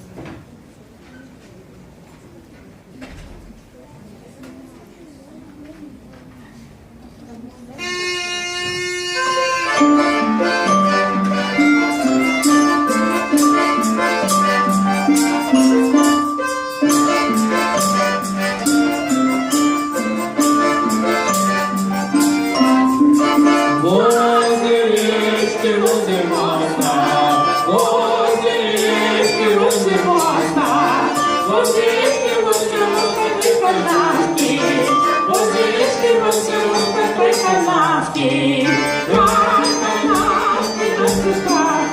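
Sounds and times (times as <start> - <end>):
folk melody: 7.8 - 41.9
shaken folk percussion: 7.8 - 41.9
voices singing: 10.1 - 41.9.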